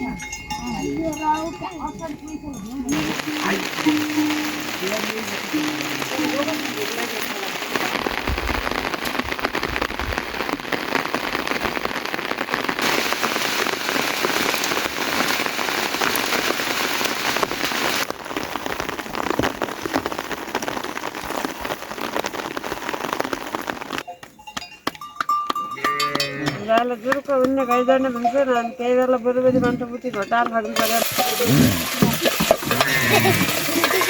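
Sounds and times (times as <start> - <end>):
heavy rain falling: 2.9 - 24.0, 30.8 - 34.0.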